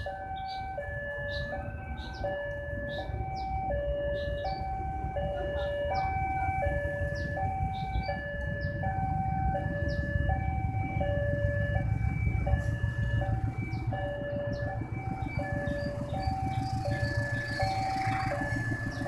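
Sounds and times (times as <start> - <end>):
two-tone crossing alarm: 0.0 - 19.0
low rumble: 4.5 - 19.0.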